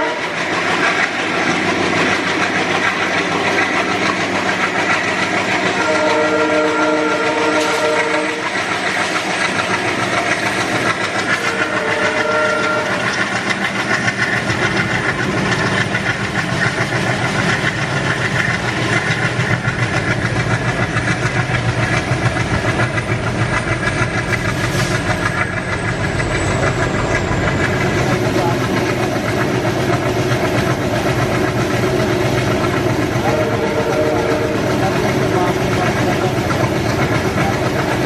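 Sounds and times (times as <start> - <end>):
train horn blasts: 0.0 - 0.5, 5.6 - 8.6, 11.3 - 13.2, 33.2 - 35.0
train passing with heavy rumble: 0.0 - 38.0
wheels clattering over rail joints: 0.4 - 6.0, 7.3 - 33.4.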